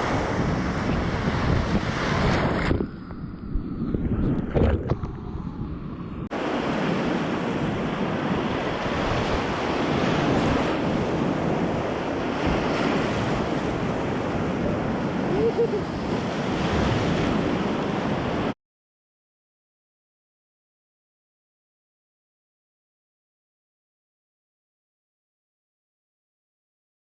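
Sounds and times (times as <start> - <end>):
wind buffeting microphone: 0.0 - 18.5.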